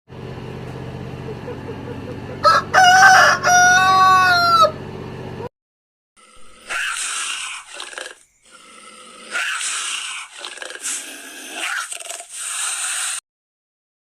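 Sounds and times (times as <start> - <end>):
dog growling: 6.2 - 13.2.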